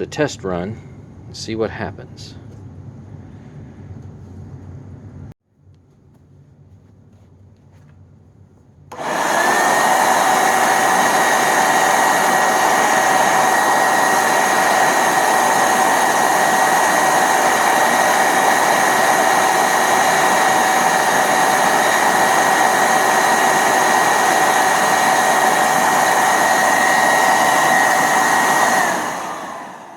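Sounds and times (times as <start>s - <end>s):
carpet cleaner motor whining: 8.9s - 29.9s
carpet cleaner switch: 8.9s - 29.9s.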